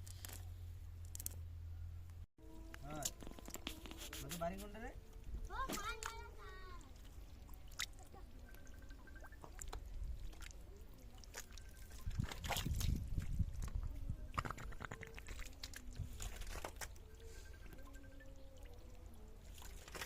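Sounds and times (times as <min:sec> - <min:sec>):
water sloshing and splashing: 0:04.9 - 0:20.0.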